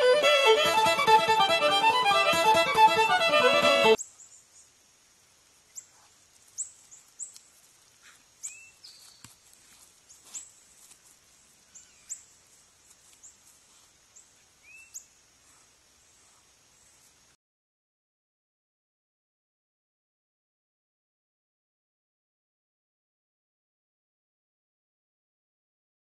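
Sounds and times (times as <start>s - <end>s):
faint high bird chirps: 8.4s - 9.3s, 14.2s - 15.2s.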